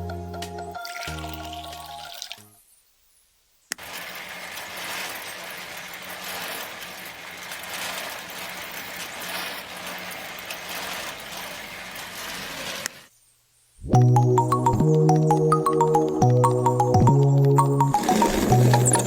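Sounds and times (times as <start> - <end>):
small tractor engine running: 3.8 - 13.0, 14.4 - 19.0.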